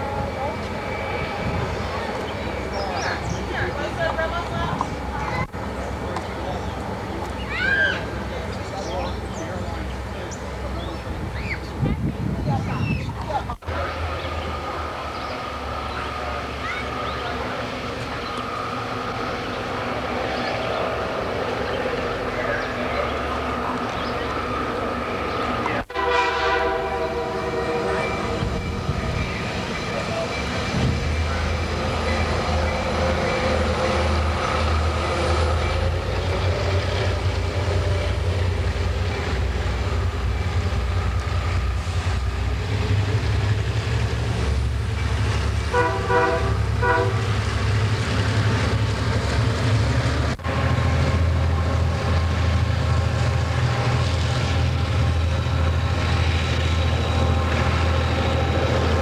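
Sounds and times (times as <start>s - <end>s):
locomotive engine rumble: 0.0s - 59.0s
locomotive horn blasts: 25.8s - 29.5s, 45.6s - 47.7s.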